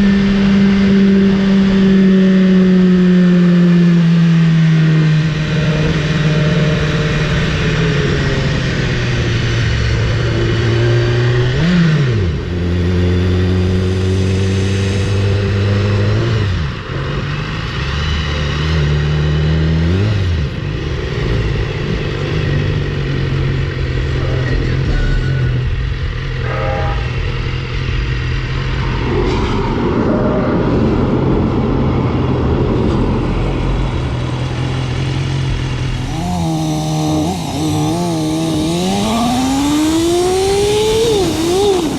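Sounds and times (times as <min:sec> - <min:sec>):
motorcycle engine revving: 0:00.0 - 0:41.9
wind rush: 0:26.2 - 0:36.4.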